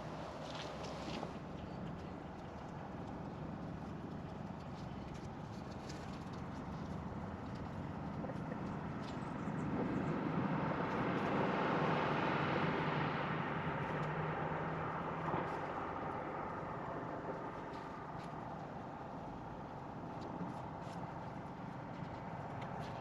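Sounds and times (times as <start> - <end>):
vehicle passing by: 9.6 - 18.6.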